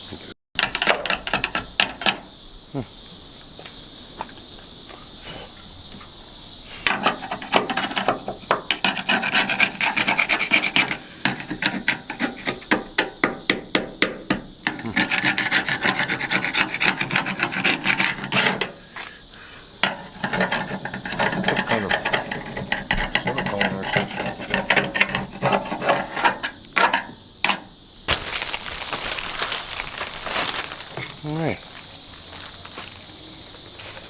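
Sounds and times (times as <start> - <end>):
hand scraping truck door: 6.8 - 19.2, 19.8 - 27.7.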